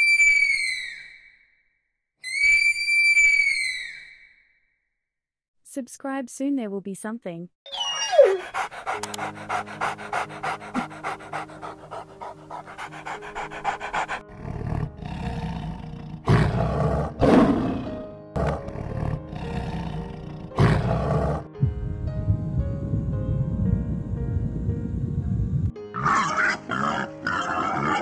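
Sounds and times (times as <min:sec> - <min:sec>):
background music: 0:07.7 - 0:28.0
animal breathy strokes: 0:08.2 - 0:14.2.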